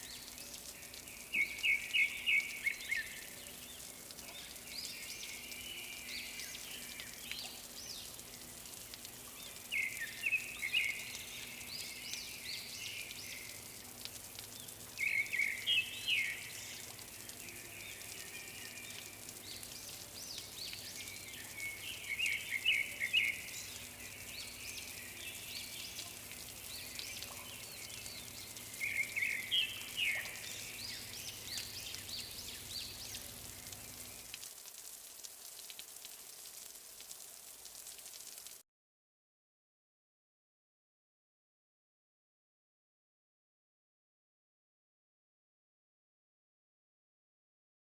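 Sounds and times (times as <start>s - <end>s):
outdoor ambience hiss: 0.0s - 38.6s
birds chirping: 14.6s - 34.4s.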